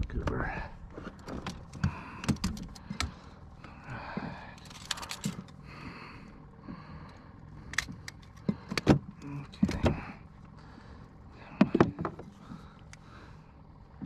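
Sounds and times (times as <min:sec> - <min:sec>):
sharp clicks and knocks: 0:01.0 - 0:03.2.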